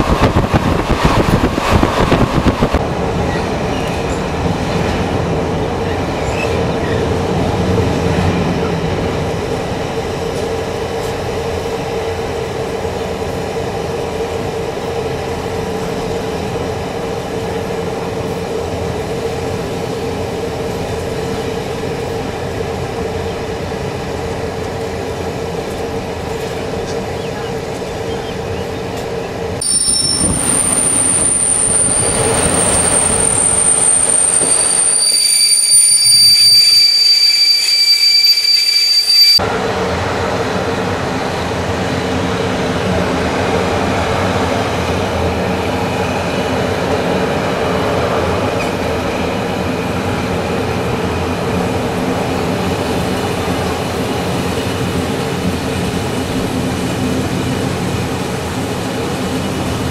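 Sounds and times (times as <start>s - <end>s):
train rumbling on rails: 0.0s - 59.9s
train wheel squeal: 3.2s - 4.3s, 5.8s - 7.2s, 29.6s - 39.4s.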